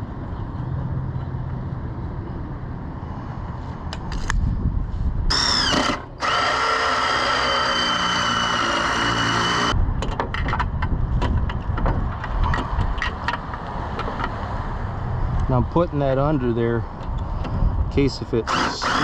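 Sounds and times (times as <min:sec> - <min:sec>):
electric drill whine: 0:05.3 - 0:09.7, 0:18.5 - 0:19.0.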